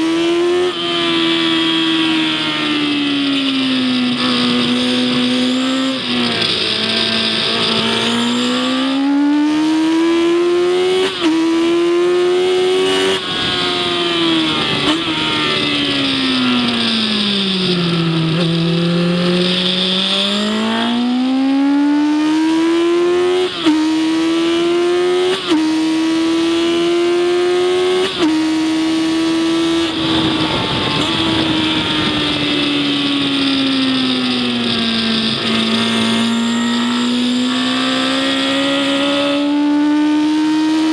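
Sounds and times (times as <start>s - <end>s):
wind and road hiss: 0.0s - 9.1s, 23.2s - 39.4s
race car engine revving: 0.0s - 40.9s.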